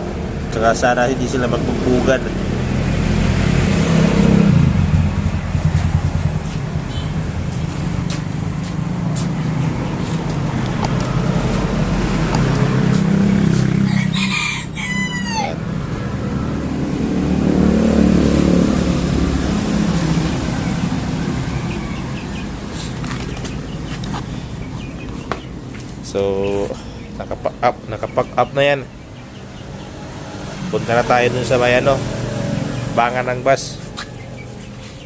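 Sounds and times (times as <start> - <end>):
passing road vehicles rumble: 0.0 - 35.0
rooster crowing: 13.6 - 15.8.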